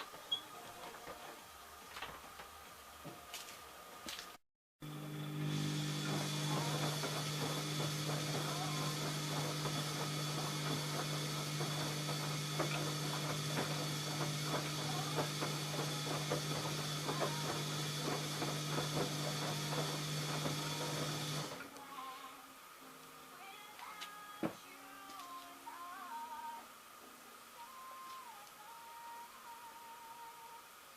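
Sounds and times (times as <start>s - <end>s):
washing machine motor hum: 4.8s - 21.7s.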